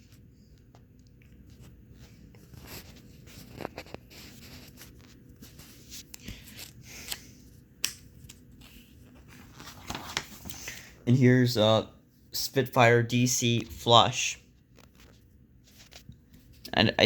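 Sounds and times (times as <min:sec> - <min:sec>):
paper pages rustling: 0:00.0 - 0:10.9, 0:13.5 - 0:16.8.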